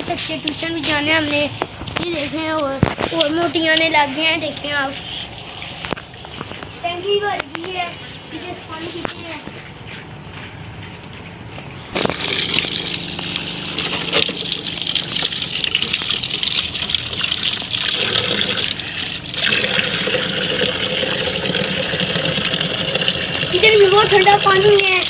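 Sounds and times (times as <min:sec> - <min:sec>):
water gushing: 0:03.3 - 0:07.4, 0:11.9 - 0:25.0.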